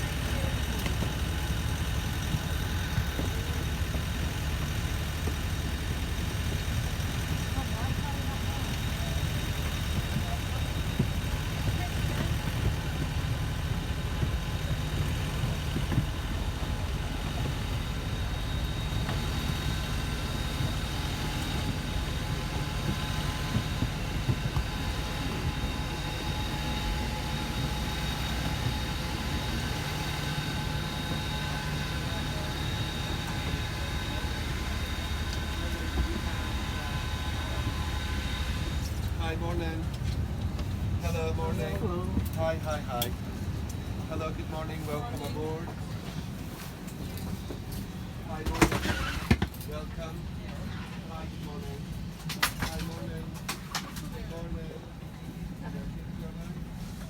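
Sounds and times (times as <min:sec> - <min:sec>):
engine hum: 0:00.0 - 0:57.0.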